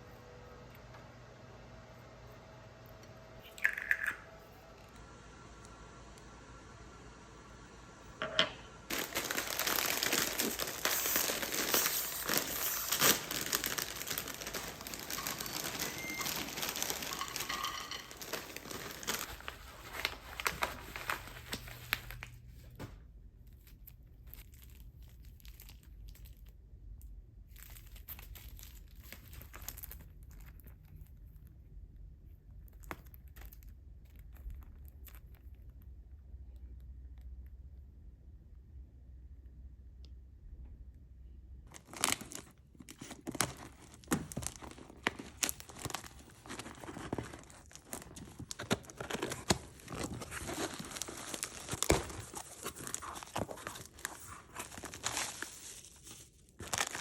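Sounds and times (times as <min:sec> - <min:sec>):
packaging crinkling and tearing: 0:08.9 - 0:22.4, 0:23.5 - 0:26.6, 0:27.4 - 0:31.5, 0:32.6 - 0:35.8, 0:41.7 - 0:57.0.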